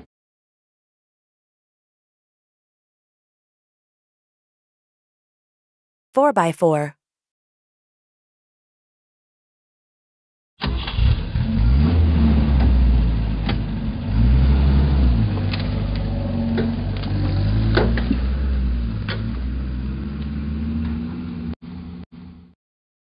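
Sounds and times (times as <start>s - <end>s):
vehicle engine revving: 10.7s - 21.6s.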